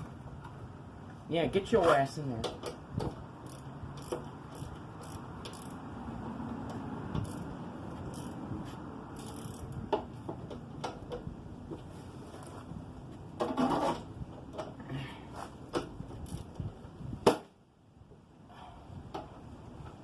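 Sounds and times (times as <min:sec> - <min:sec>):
hand tools clicking and scraping metal: 0:01.7 - 0:05.9, 0:06.5 - 0:12.7.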